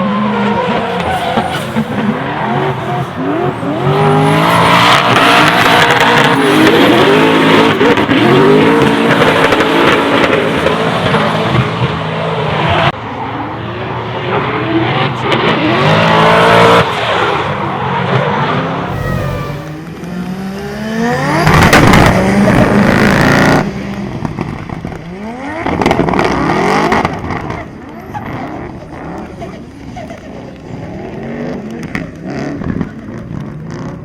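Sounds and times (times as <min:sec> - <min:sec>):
car engine revving hard: 0:00.0 - 0:12.9, 0:14.4 - 0:23.7
tyres squealing: 0:00.6 - 0:07.0.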